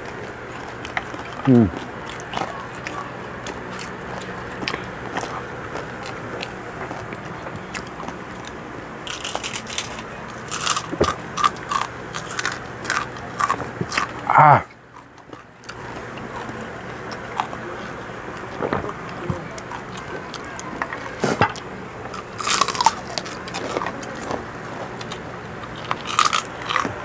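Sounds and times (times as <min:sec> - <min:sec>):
crunching fried pork skin: 0:00.0 - 0:14.3, 0:14.9 - 0:27.0
man saying ah: 0:01.4 - 0:01.8, 0:14.2 - 0:14.7.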